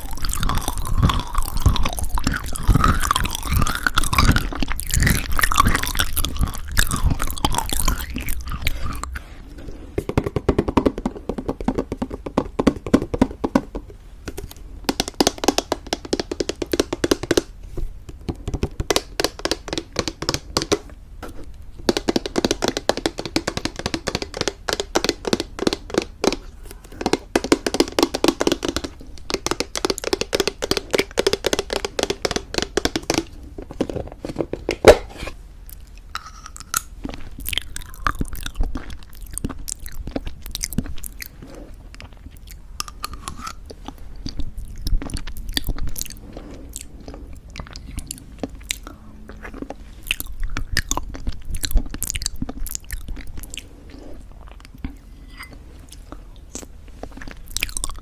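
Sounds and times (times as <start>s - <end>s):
chewing and crunching granola: 0.0s - 9.3s, 35.7s - 55.1s, 56.0s - 58.0s.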